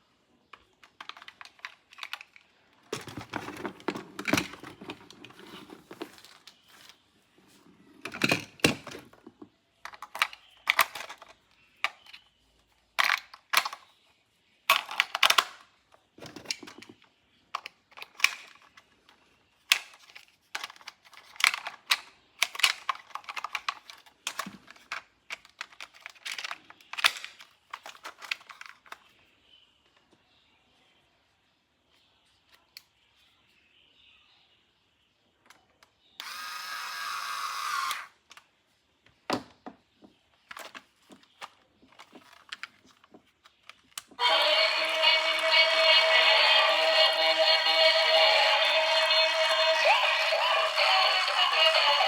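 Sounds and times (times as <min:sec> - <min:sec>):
plastic toys clicking and rattling: 0:00.5 - 0:06.6, 0:09.8 - 0:14.0, 0:14.7 - 0:29.2, 0:40.4 - 0:52.0.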